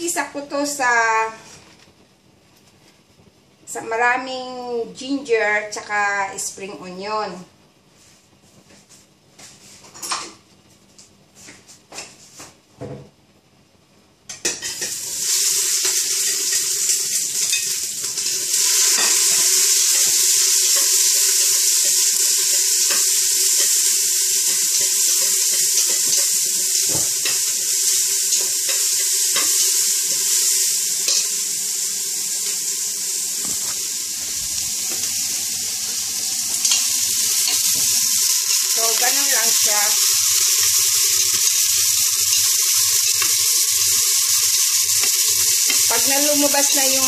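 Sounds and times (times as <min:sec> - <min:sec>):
vegetables sizzling in hot oil: 0:14.4 - 0:47.0.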